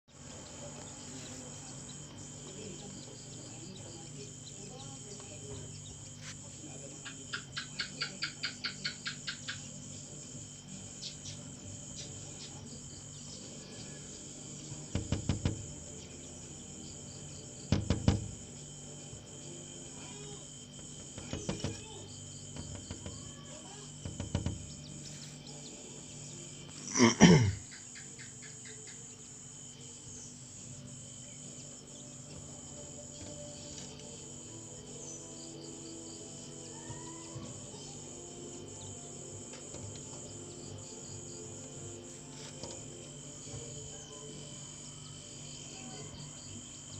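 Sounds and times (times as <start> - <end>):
insect drone: 0.1 - 46.9
bird pecking on window glass: 14.8 - 16.2, 17.6 - 18.6, 20.8 - 25.3.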